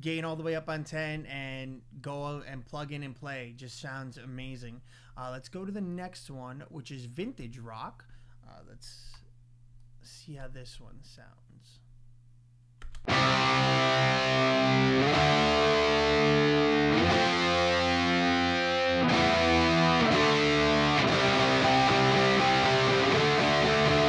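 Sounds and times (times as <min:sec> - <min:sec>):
distorted electric guitar chords: 0:13.1 - 0:24.0.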